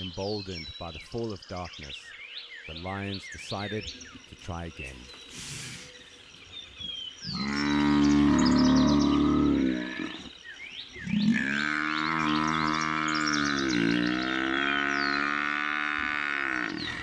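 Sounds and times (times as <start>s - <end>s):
buffalo bellowing in distress: 7.3s - 10.3s, 11.0s - 17.0s.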